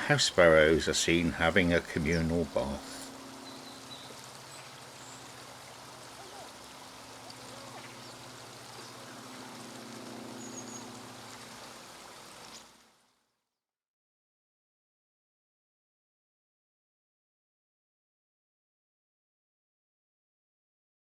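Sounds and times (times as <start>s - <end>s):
birds splashing in water: 1.8s - 13.0s.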